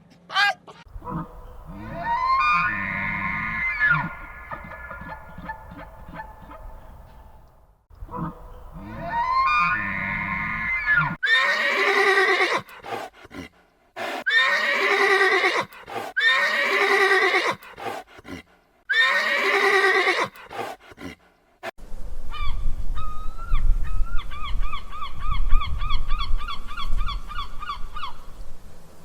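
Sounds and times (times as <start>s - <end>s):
animal calling: 0.3s - 7.3s, 8.0s - 21.2s.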